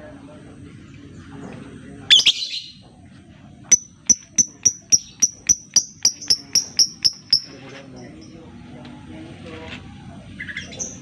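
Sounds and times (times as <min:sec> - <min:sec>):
bird squawking: 0:02.1 - 0:02.8, 0:04.2 - 0:07.5
high sharp bird chirps: 0:02.1 - 0:02.8, 0:03.7 - 0:07.5.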